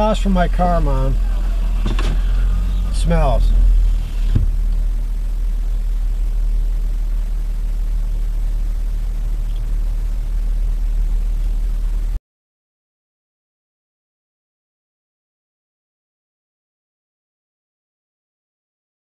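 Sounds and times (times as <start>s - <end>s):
car engine rumbling inside cabin: 0.0s - 12.2s.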